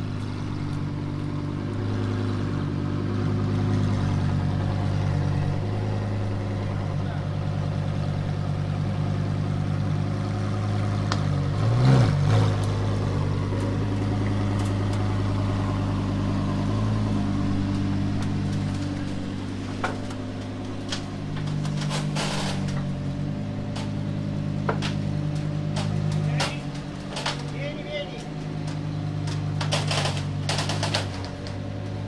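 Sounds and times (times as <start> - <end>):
car engine idling and creeping: 0.0 - 32.0
sharp clicks and knocks: 24.6 - 31.6.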